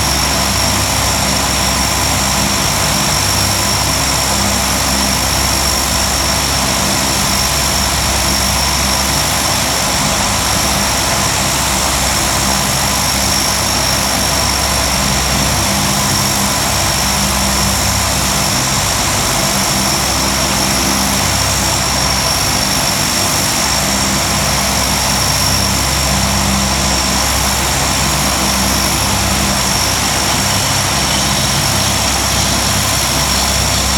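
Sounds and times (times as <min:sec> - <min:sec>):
high-pitched engine whine: 0:00.0 - 0:33.9
turboprop engines running: 0:00.0 - 0:33.9.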